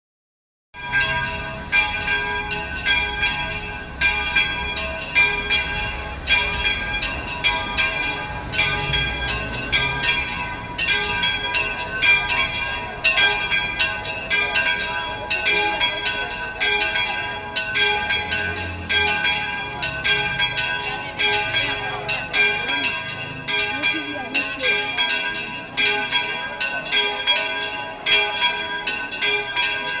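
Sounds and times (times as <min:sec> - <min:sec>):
church bells ringing a peal: 0:00.8 - 0:30.0.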